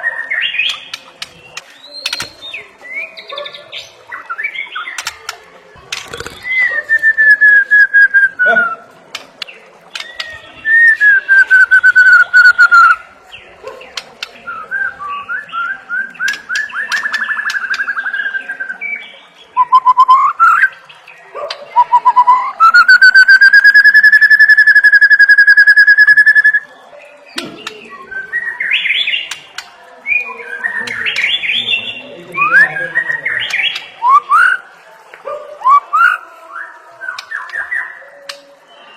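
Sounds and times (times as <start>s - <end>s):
bird singing whistled phrases: 9.9s - 13.0s, 14.4s - 20.8s, 21.8s - 26.7s, 27.3s - 29.4s, 30.1s - 34.6s.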